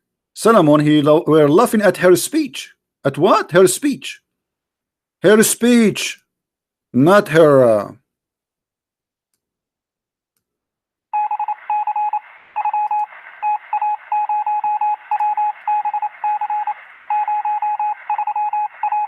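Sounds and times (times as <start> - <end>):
morse code beeps: 11.2 - 19.0
radio hiss: 11.7 - 18.0.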